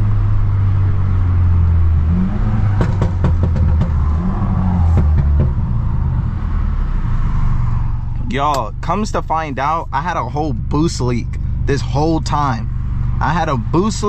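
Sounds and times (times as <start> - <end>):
car engine and exhaust revving: 0.0 - 14.0
exhaust pops: 2.5 - 6.1, 8.1 - 14.0.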